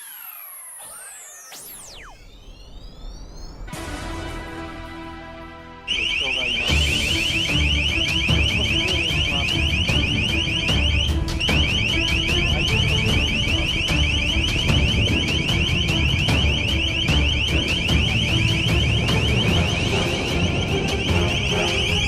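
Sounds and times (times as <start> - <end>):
electronic alarm rising beeps: 0.0 - 3.8, 5.9 - 22.0
low rumble: 7.2 - 22.0.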